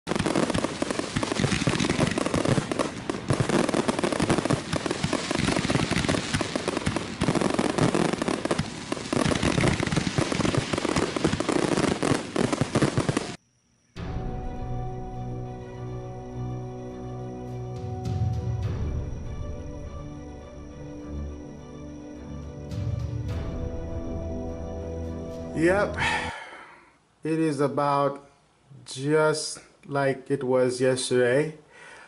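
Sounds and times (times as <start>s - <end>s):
fireworks crackling and banging: 0.1s - 13.4s.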